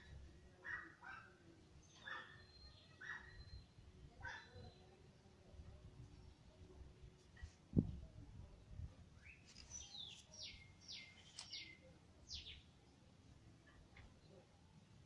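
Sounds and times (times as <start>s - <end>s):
bird chirping: 1.8s - 5.0s, 9.2s - 12.7s.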